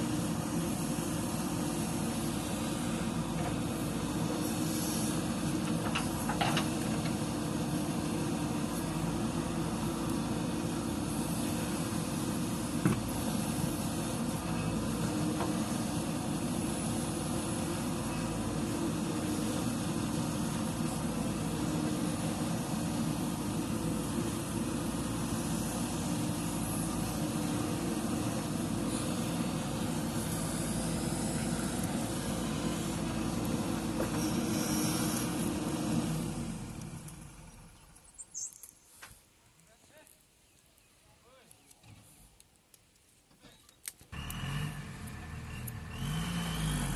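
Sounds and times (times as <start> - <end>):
diesel engine running: 0.0 - 38.1, 44.1 - 46.9.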